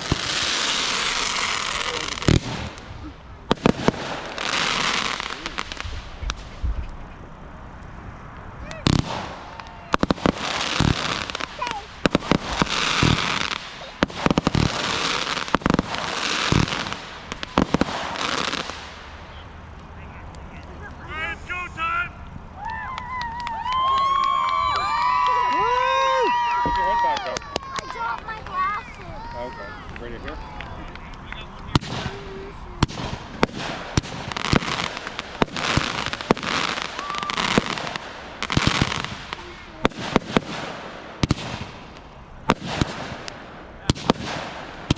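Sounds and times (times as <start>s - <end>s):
fireworks bangs: 0.0s - 44.9s
fireworks crackling and hissing: 0.0s - 44.9s.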